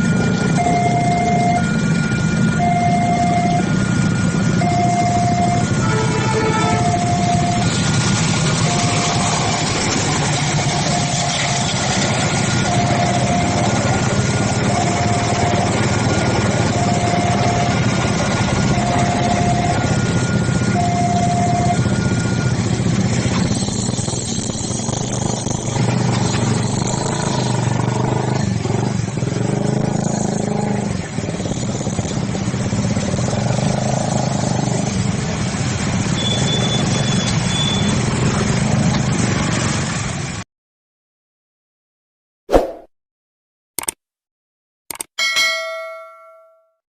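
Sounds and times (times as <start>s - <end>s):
level crossing warning alarm: 0.0s - 9.9s, 10.6s - 24.8s
motorcycle and car engines running: 0.0s - 40.4s.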